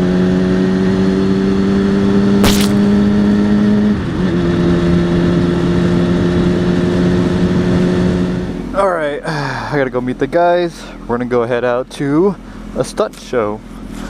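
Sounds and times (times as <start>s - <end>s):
sharp click: 2.4s - 3.1s.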